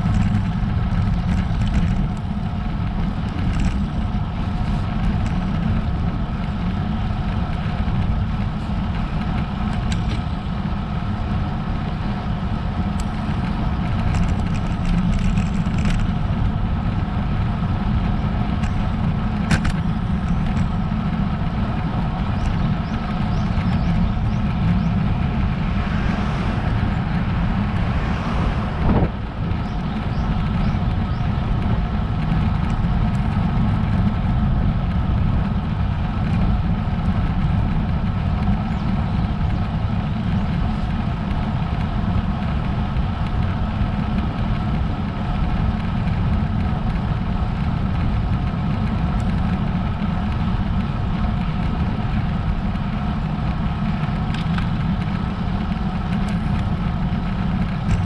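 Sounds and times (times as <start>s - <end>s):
bicycle road noise: 0.0s - 58.0s
wind rumble: 0.0s - 58.0s
motor vehicle passing: 23.0s - 32.2s.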